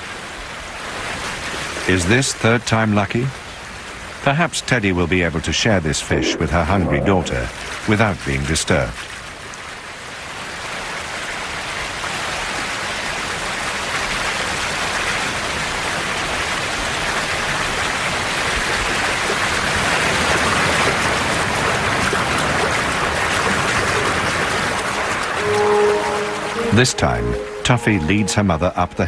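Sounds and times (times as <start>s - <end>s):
river water rushing: 11.0s - 27.7s.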